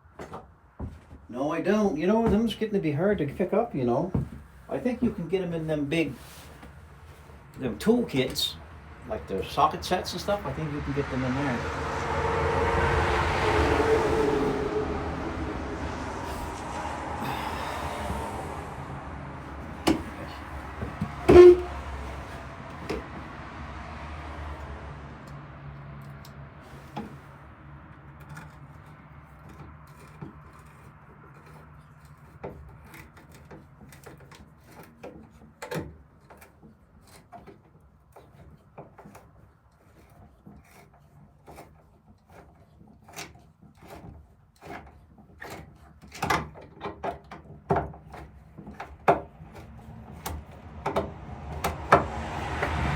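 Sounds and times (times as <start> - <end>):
rushing noise: 9.0 - 22.9
hand tools knocking on wooden cupboard: 19.9 - 20.2.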